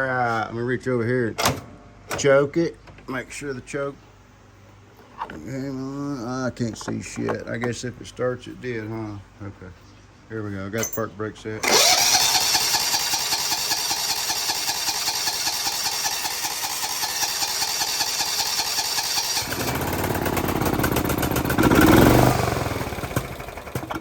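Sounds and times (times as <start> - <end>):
electric starter cranking engine: 11.6 - 24.0
mower engine running roughly: 11.6 - 24.0.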